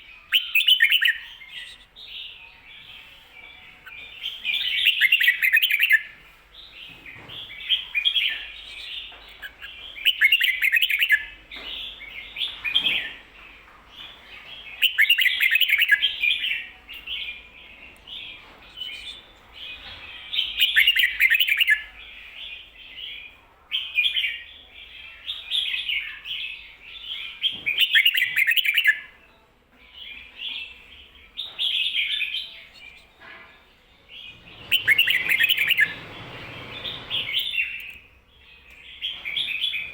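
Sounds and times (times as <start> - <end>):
bird singing loud clear phrases: 0.0 - 39.9
soft bird chattering: 0.2 - 3.1, 14.7 - 21.9, 34.4 - 38.0.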